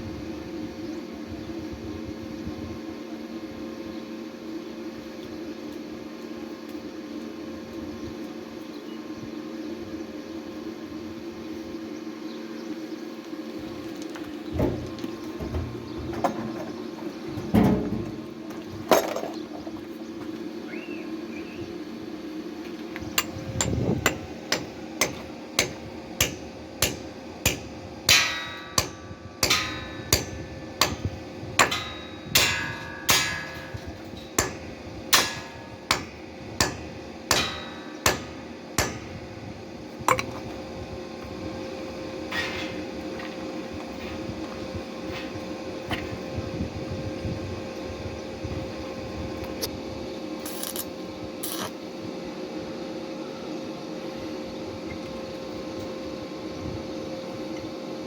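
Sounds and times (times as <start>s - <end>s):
steady hum: 0.0s - 58.0s
hard ringing strikes: 23.2s - 39.3s.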